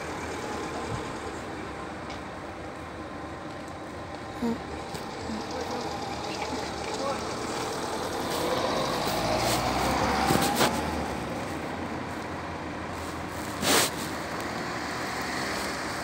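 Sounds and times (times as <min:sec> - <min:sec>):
steady traffic hum: 0:00.0 - 0:16.0
motor vehicle passing: 0:04.6 - 0:16.0.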